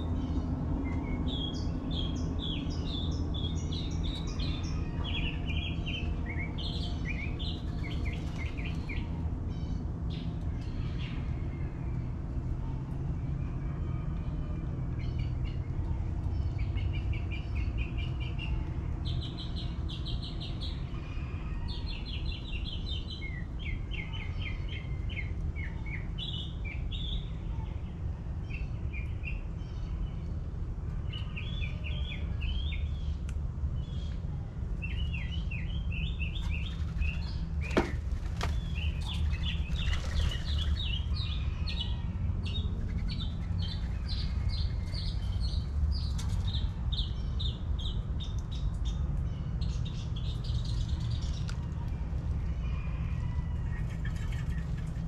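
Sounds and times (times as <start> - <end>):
birds chirping: 33.8 - 52.1, 52.7 - 55.0.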